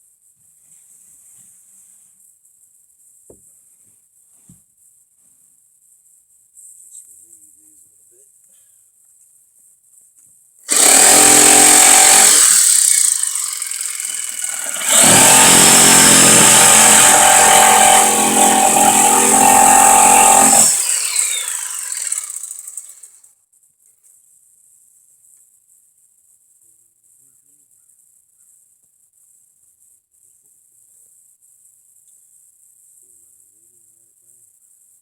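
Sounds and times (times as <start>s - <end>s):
electric saw cutting wood: 10.7s - 23.1s
saw motor winding down whine: 10.7s - 23.1s.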